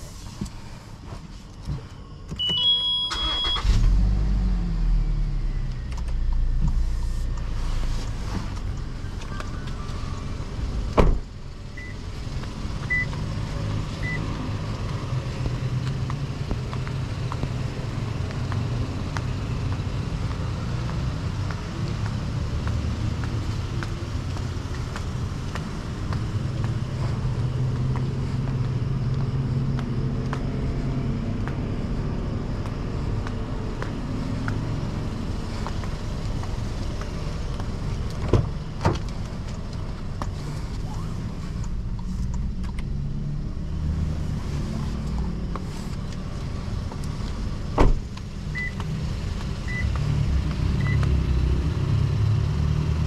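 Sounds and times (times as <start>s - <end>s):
car engine starting and running: 0.0s - 53.0s
electronic beeps: 2.4s - 3.7s.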